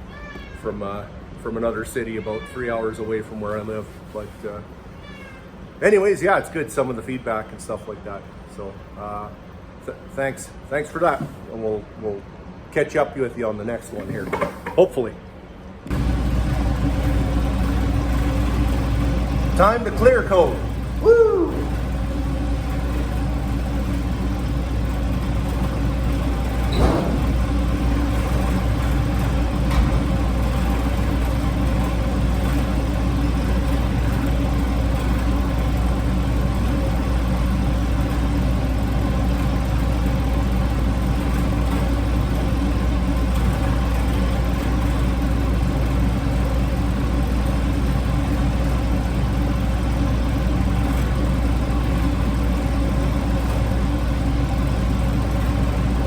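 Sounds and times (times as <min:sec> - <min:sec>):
machine hum: 0:15.7 - 0:56.0.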